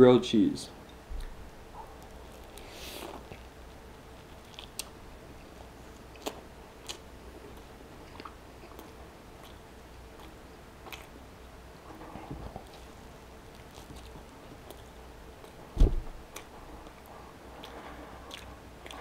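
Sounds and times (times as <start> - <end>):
chewing with crunches: 0.8 - 19.0
person biting a sandwich: 2.0 - 3.5, 4.3 - 5.0.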